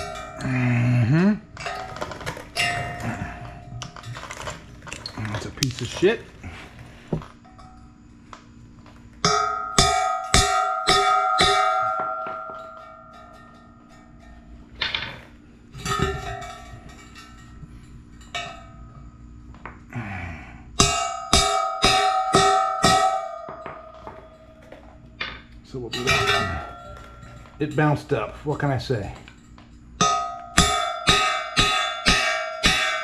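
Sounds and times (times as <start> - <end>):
faint steady hum: 0.0 - 33.0
hammer blows on ringing steel: 9.2 - 14.3, 20.8 - 24.7, 30.0 - 33.0.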